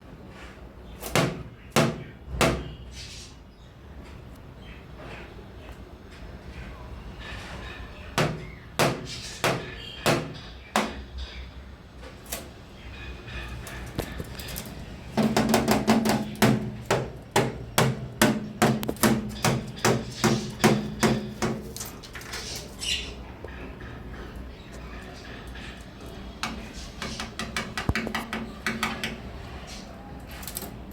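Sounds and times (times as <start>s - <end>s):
sharp knocks: 1.1s - 2.8s, 8.2s - 11.1s, 15.2s - 21.7s.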